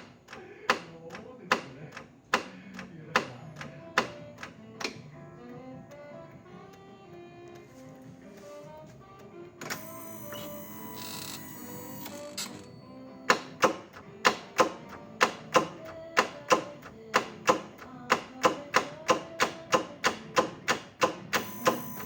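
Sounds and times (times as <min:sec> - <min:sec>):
gearbox actuator clicking: 0:09.6 - 0:12.7, 0:13.3 - 0:22.0.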